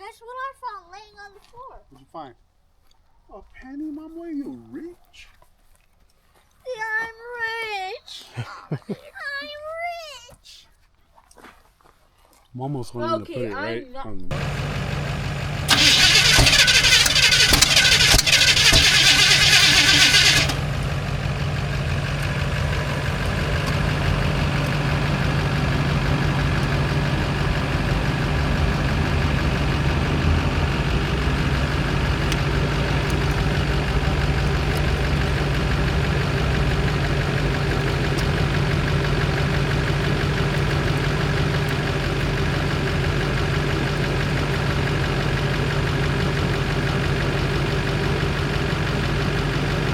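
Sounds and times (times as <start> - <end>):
truck engine cranking and idling: 14.3 - 49.9.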